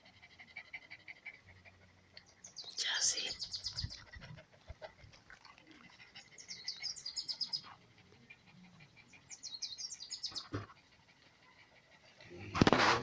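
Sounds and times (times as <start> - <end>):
small bird trilling: 2.5 - 4.0.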